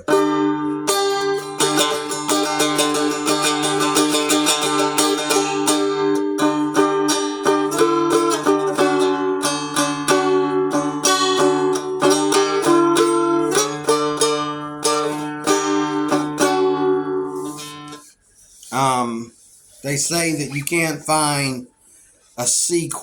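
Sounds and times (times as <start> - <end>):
low drone of open strings: 0.0 - 18.1
strummed dulcimer melody: 0.0 - 19.5.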